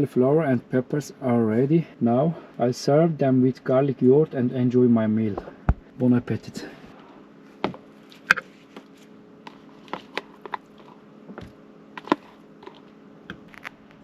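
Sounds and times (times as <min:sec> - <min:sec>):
steady low hum: 0:00.0 - 0:14.0
person biting food: 0:12.0 - 0:14.0.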